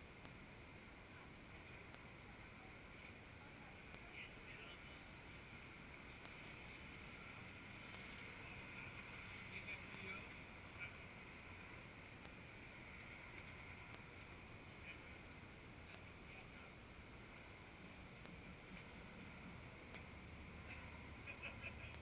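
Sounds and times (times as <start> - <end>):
faint background hiss: 0.0 - 22.0
light ticks: 0.2 - 0.4, 2.9 - 4.2, 5.9 - 11.0, 12.2 - 12.4, 13.0 - 15.1, 15.8 - 16.4, 18.2 - 22.0.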